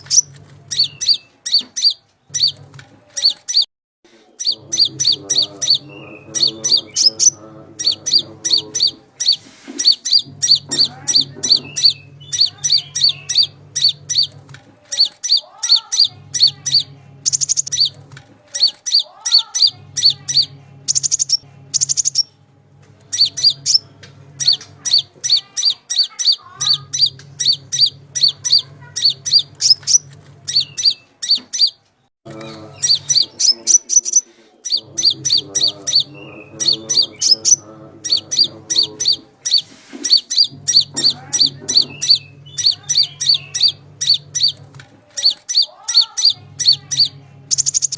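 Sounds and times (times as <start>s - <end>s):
bird high sharp chirps: 0.0s - 3.7s, 4.4s - 22.3s, 23.1s - 31.8s, 32.4s - 47.9s
low hum: 4.6s - 15.0s, 19.7s - 25.8s, 26.4s - 31.2s, 34.8s - 45.4s.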